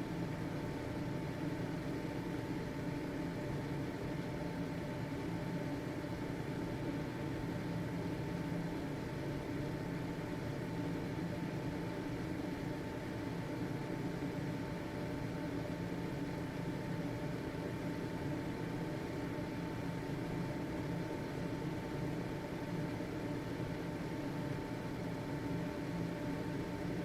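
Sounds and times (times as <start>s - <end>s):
ventilation fan running: 0.0s - 27.0s.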